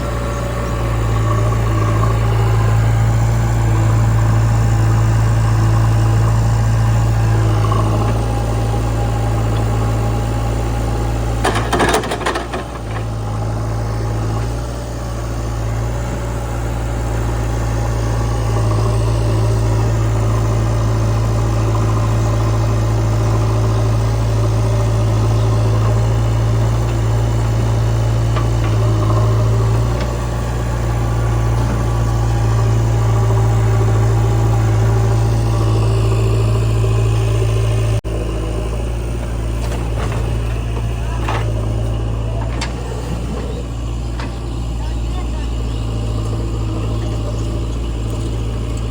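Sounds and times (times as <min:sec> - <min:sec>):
diesel engine idling: 0:00.0 - 0:48.9
rattling clatter: 0:11.4 - 0:13.4.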